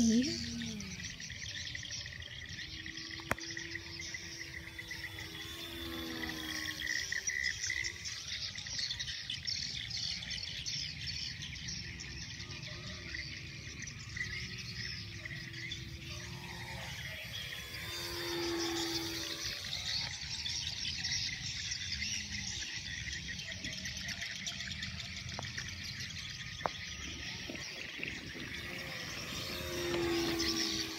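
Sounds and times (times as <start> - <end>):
insects chirring: 0.0 - 9.6, 13.1 - 30.9
faint plane engine drone: 0.0 - 30.9.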